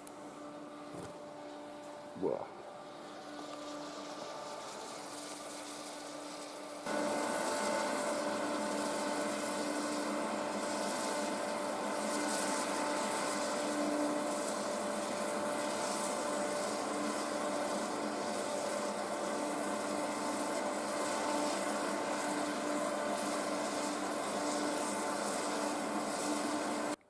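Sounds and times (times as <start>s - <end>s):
snow-making machines droning: 0.0s - 27.0s.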